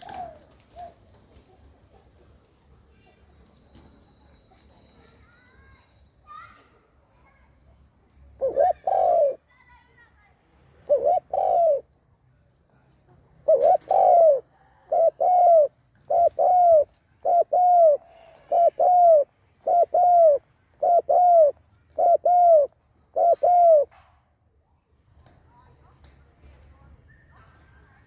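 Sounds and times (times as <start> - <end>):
dove cooing: 0.0 - 1.7, 8.4 - 9.4, 10.9 - 11.9, 13.4 - 23.9.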